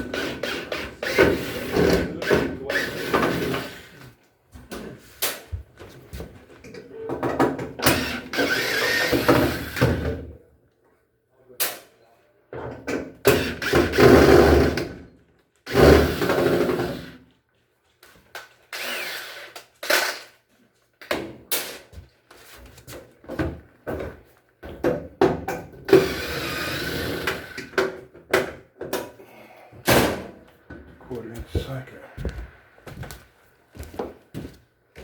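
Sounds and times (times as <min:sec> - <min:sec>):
power drill running: 0:07.9 - 0:09.9, 0:13.3 - 0:14.8, 0:18.7 - 0:20.2, 0:25.9 - 0:27.7.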